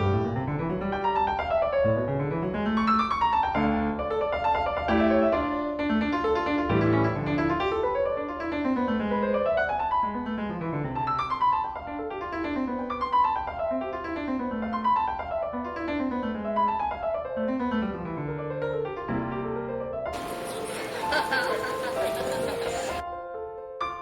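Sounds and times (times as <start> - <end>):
solo piano scale runs: 20.2 - 23.0.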